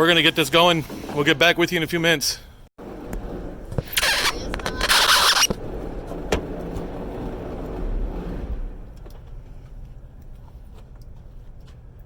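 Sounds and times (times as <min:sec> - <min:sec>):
truck engine running: 0:02.8 - 0:12.0.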